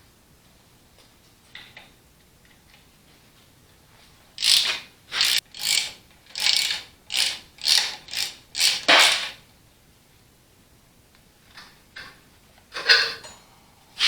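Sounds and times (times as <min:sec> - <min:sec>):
socket ratchet clicking: 0:04.4 - 0:09.3.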